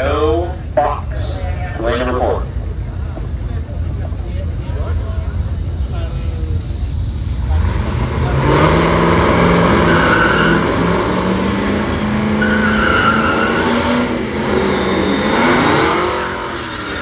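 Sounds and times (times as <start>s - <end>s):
drag racing engine at high revs: 7.2s - 17.0s
high squeal: 9.8s - 10.9s, 12.3s - 17.0s.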